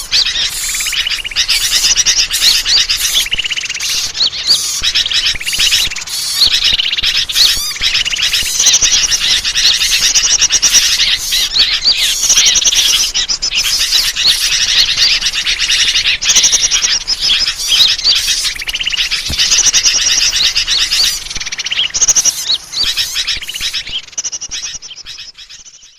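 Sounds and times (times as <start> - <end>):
many small birds chirping: 0.0 - 25.9.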